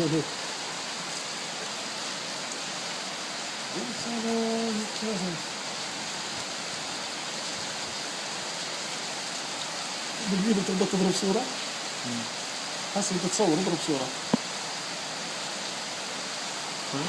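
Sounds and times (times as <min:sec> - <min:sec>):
person's voice: 0:00.0 - 0:00.3, 0:03.7 - 0:05.4, 0:10.2 - 0:12.3, 0:13.0 - 0:14.2
heavy rain: 0:00.0 - 0:17.0.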